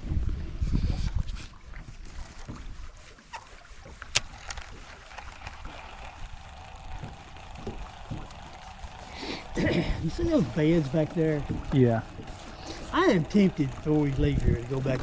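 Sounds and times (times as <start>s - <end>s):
wind rumble on microphone: 0.0s - 3.0s
small knocks: 6.9s - 9.0s.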